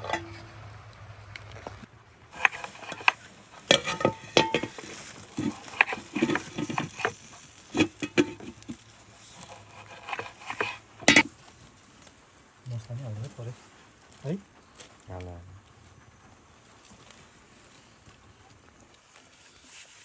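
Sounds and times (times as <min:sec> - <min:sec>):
faint hiss: 0:00.0 - 0:20.0
utensil stirring and knocking in pot: 0:02.3 - 0:11.3.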